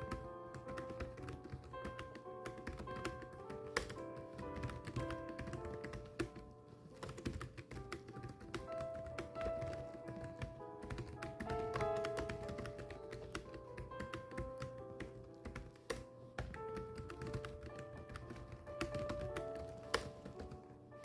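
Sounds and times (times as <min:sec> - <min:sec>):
keyboard typing: 0:00.0 - 0:20.9
background music with held notes: 0:00.0 - 0:21.0.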